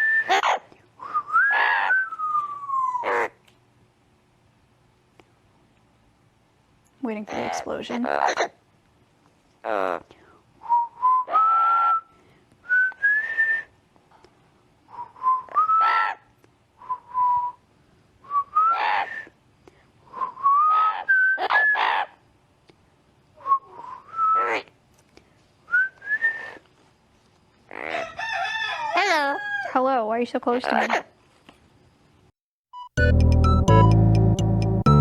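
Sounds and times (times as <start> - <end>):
parrot whistling a tune: 0.0 - 3.0, 10.7 - 12.1, 15.0 - 16.2, 18.3 - 19.3, 20.4 - 22.0, 25.7 - 26.6
parrot squawking: 0.3 - 0.7, 1.5 - 2.0, 7.3 - 8.6, 15.8 - 16.2, 18.7 - 19.1, 20.7 - 22.2, 27.7 - 29.2.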